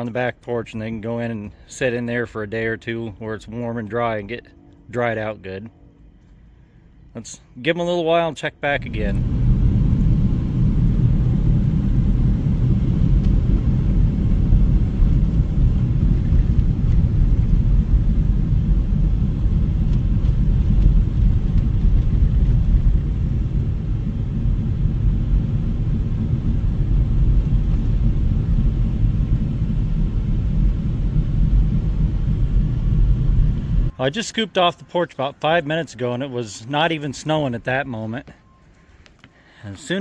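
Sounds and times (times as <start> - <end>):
wind buffeting microphone: 8.8 - 33.9.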